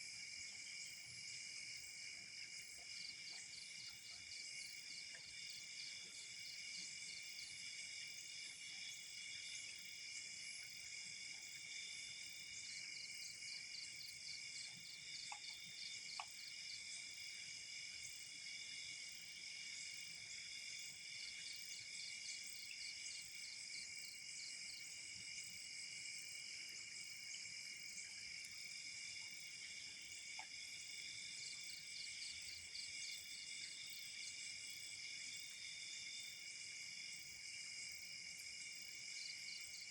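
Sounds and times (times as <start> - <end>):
night insects chirping: 0.0 - 39.9
faint ticks: 14.7 - 16.6.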